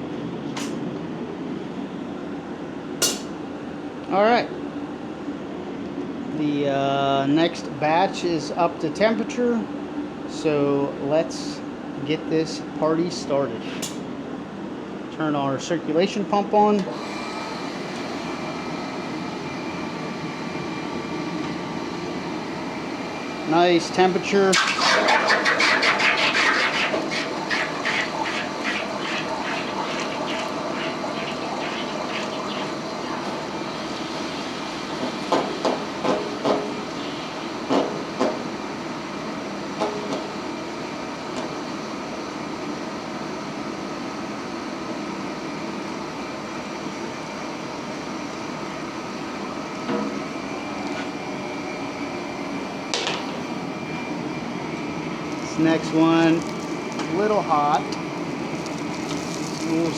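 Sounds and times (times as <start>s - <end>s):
hot steel boiling crackle in water: 24.6s - 34.6s, 55.3s - 59.9s.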